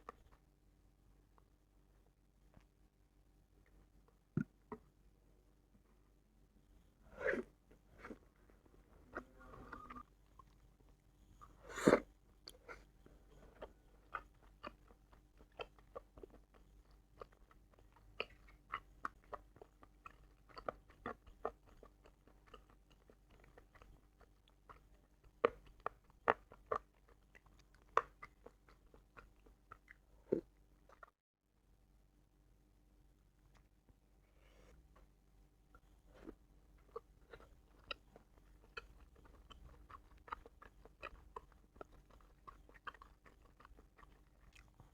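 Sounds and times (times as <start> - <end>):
chewing and biting: 7.3 - 31.1, 36.1 - 44.9.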